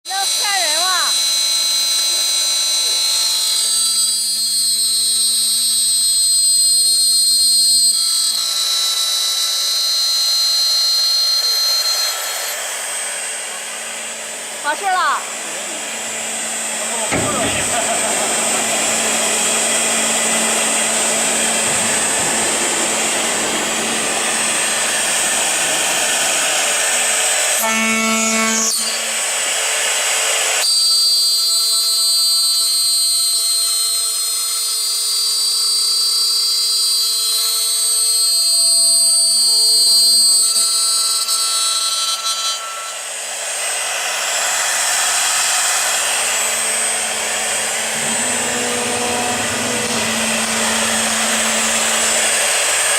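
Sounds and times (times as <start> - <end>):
high multi-tone whine: 0.1 - 29.4, 43.6 - 52.9
milling machine spindle hissing: 10.7 - 27.6, 43.5 - 52.9
steady machine hum: 12.0 - 28.1, 43.7 - 52.9.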